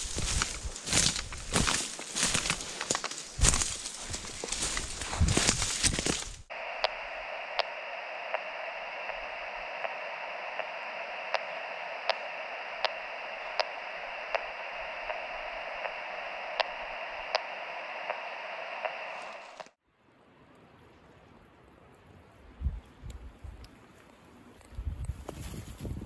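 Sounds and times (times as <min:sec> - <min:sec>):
radio receiver static hiss: 0:00.0 - 0:19.8.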